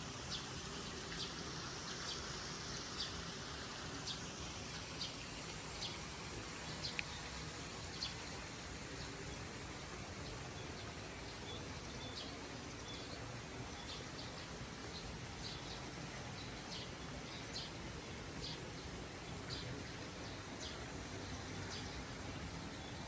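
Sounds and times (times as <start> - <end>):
outdoor background hiss: 0.0 - 23.0
birds chirping: 4.8 - 8.4.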